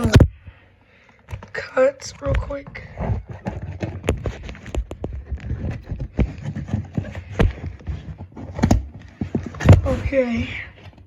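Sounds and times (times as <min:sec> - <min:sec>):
craft knife cutting cardboard: 0:02.2 - 0:11.0.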